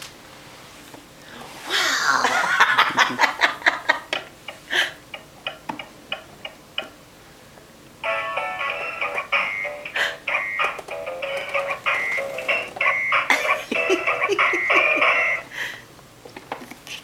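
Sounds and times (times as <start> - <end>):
person laughing: 1.7 - 5.0, 13.2 - 15.7
music: 8.0 - 15.5.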